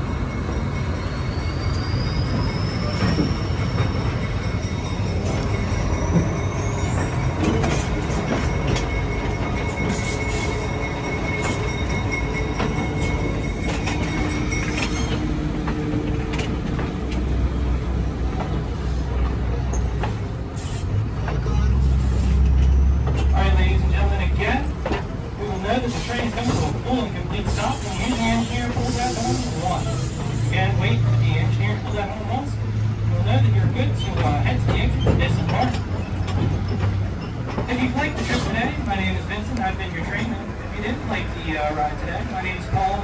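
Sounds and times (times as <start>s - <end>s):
high wheel squeal: 0.0s - 15.4s, 25.4s - 31.4s, 34.0s - 39.4s
train running gear rumble: 0.0s - 43.0s.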